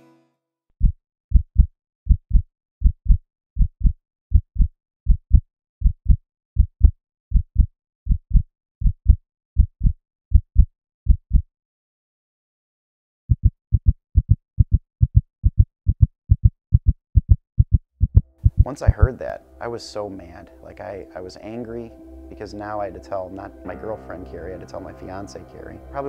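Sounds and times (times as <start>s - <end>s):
heartbeat thumps: 0.8s - 11.5s, 13.3s - 19.3s.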